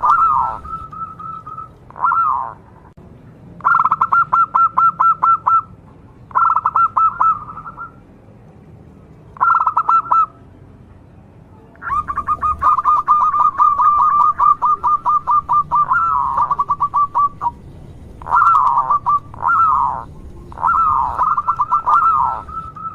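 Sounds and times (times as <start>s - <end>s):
dove cooing: 0.0s - 2.7s, 3.6s - 5.7s, 6.3s - 8.0s, 9.4s - 10.4s, 11.8s - 17.6s, 18.2s - 22.9s.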